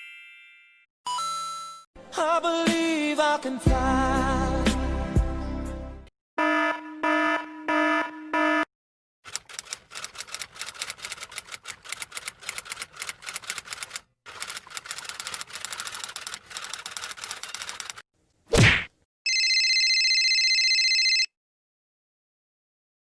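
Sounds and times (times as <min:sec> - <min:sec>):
rapid typing key clicks: 0:09.3 - 0:18.0.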